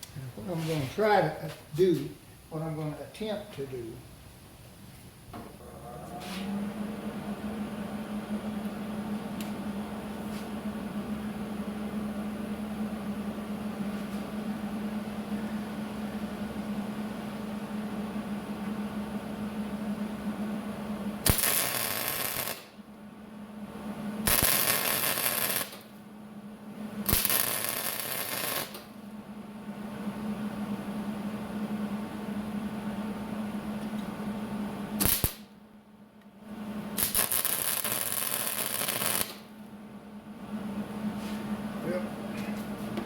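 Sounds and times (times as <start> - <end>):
steady low hum: 0.0 - 43.0
welding arc bursts: 21.2 - 22.8, 24.2 - 25.9, 27.0 - 28.9, 35.0 - 35.5, 37.0 - 39.5.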